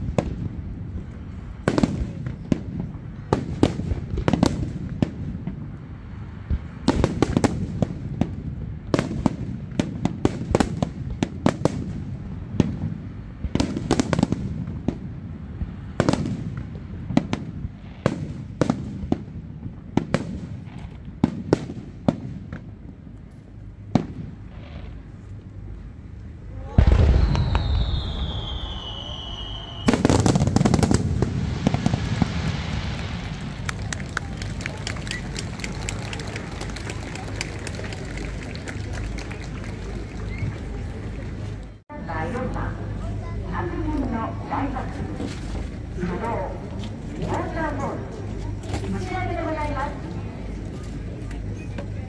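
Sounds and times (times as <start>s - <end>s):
low rumble: 23.3s - 37.3s
firework shells booming and cracking: 26.6s - 36.8s.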